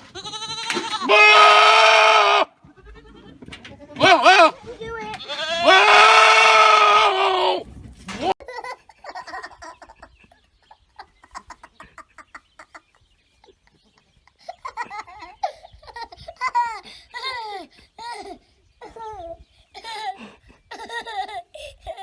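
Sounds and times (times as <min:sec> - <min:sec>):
high laugh-like animal calls: 0:08.4 - 0:19.0.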